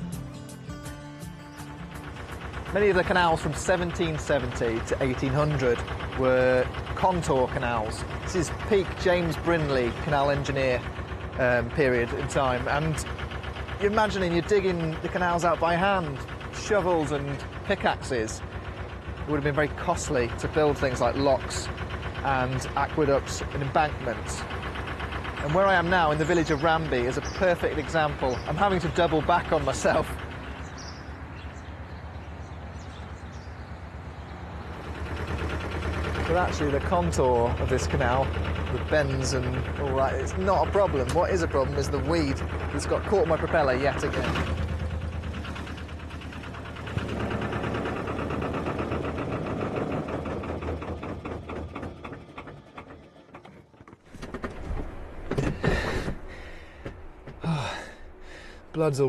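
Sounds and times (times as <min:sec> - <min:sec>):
diesel engine chugging: 0:00.0 - 0:59.0
knocks and clattering: 0:34.7 - 0:58.0
sharp clunk: 0:50.5 - 0:57.4.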